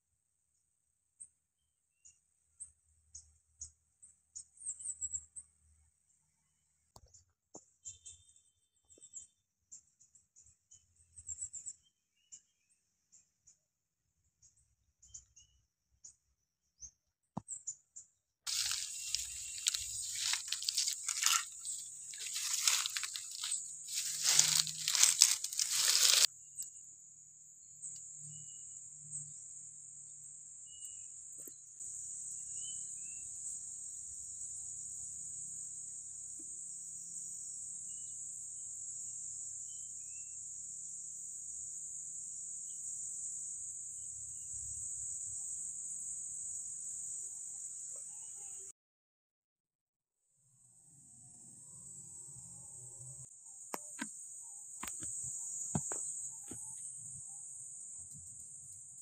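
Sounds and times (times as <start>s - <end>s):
faint bird chirps: 1.2s - 20.4s, 30.6s - 31.2s, 32.5s - 33.3s, 47.6s - 48.7s
loud crunching and rustling: 18.5s - 26.3s
high-pitched insect drone: 18.5s - 26.7s, 31.8s - 48.7s, 51.4s - 59.0s.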